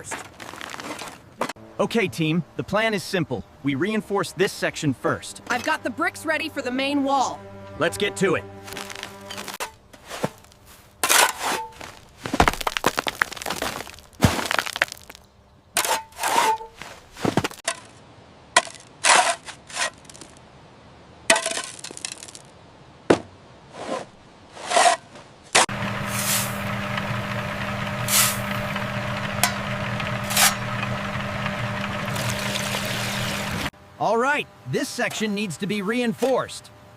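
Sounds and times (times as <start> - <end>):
cracks and knocks on masonry: 12.3 - 15.2
small motor running: 25.7 - 33.7.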